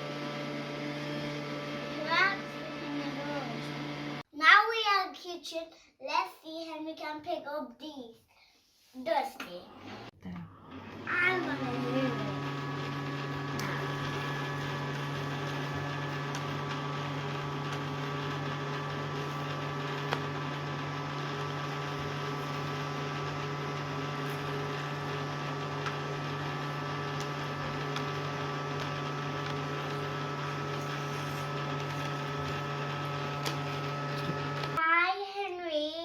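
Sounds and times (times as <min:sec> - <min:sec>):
toy vacuum motor humming: 0:10.8 - 0:34.8.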